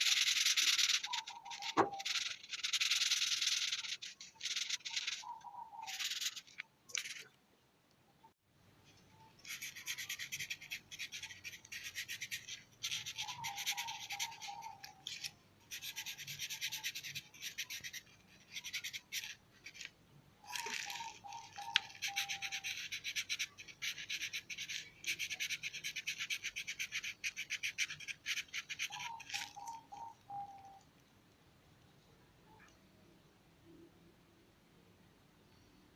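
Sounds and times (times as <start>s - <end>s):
drawing tool scratching on paper: 0.0s - 5.2s, 5.8s - 7.2s, 9.4s - 19.9s, 20.6s - 29.6s.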